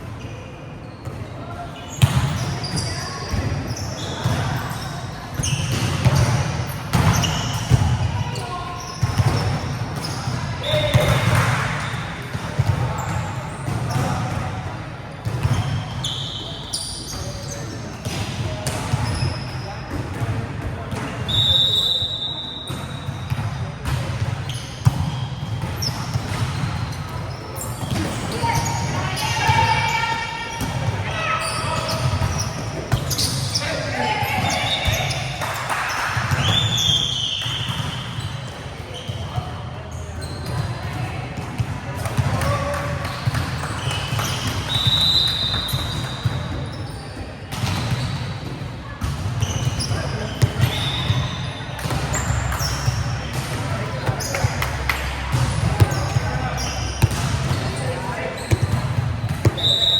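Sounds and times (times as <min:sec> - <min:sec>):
sneakers squeaking on floor: 0:00.1 - 0:59.9
players' voices: 0:00.2 - 0:59.9
volleyball hits and bounces: 0:05.3 - 0:08.2, 0:09.0 - 0:14.6, 0:47.5 - 0:59.9
volleyball hits and thuds: 0:51.8 - 0:57.8.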